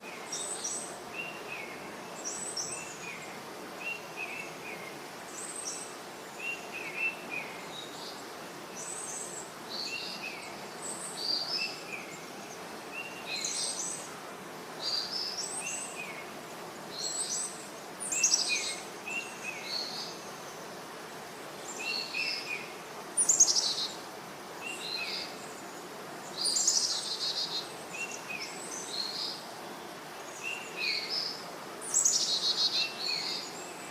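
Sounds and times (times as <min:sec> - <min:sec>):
outdoor ambience hiss: 0:00.0 - 0:33.9
songbirds chirping: 0:00.0 - 0:33.9.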